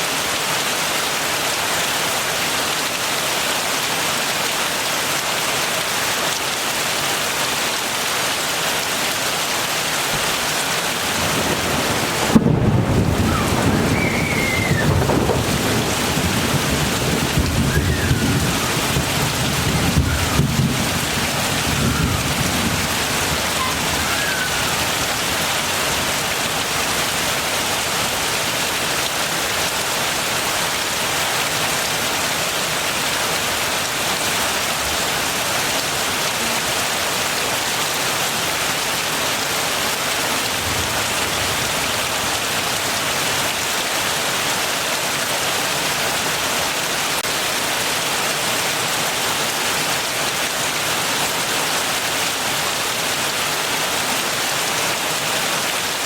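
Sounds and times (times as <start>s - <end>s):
heavy rain falling: 0.0s - 56.0s
thunder rumble: 11.1s - 25.3s.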